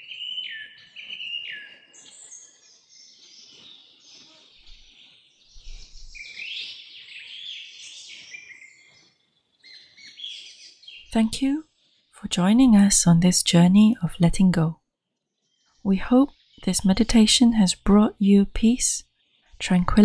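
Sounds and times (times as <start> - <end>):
songbirds singing: 0.0 - 20.0.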